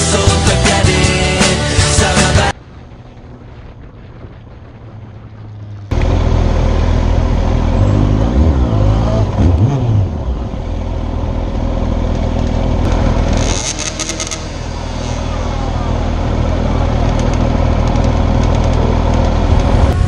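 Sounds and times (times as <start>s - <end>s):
motorcycle engine revving: 4.4s - 20.0s
rushing noise: 11.5s - 20.0s.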